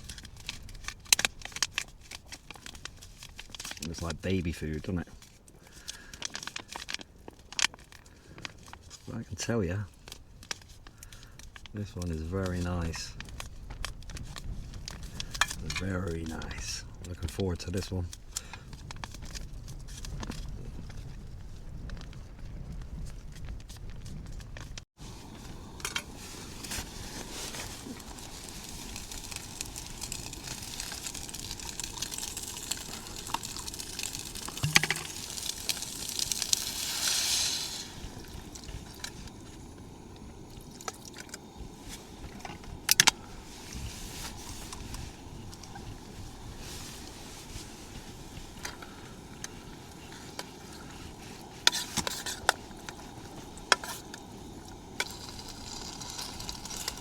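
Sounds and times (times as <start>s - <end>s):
rushing pour-like noise: 25.0s - 57.0s
steady hiss: 25.0s - 57.0s
cooking gear clicking and clinking: 27.5s - 36.8s, 48.3s - 57.0s.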